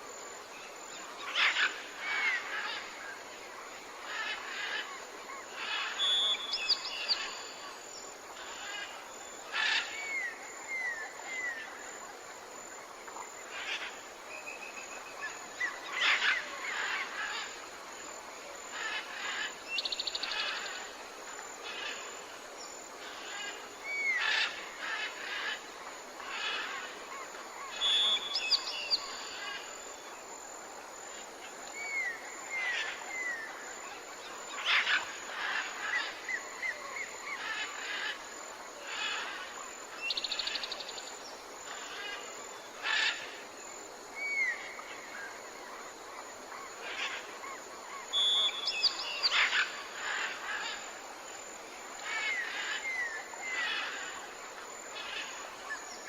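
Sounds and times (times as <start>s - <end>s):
steady background hiss: 0.0s - 56.0s
songbirds calling and singing: 4.0s - 7.8s, 26.2s - 30.2s, 31.5s - 38.2s, 38.8s - 43.4s, 44.1s - 51.0s.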